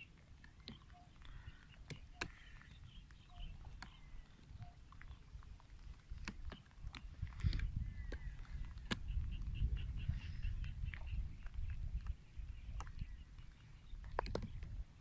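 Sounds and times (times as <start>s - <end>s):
birds chirping: 0.0s - 15.0s
sharp clicks: 0.4s - 9.5s.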